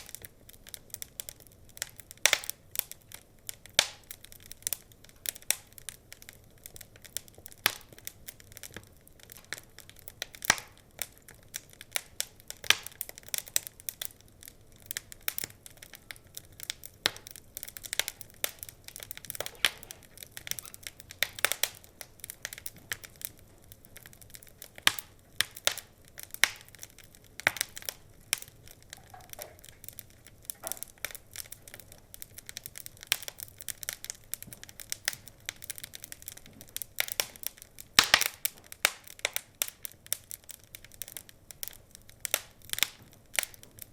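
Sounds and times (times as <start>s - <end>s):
wood fire crackling and popping: 0.0s - 43.9s.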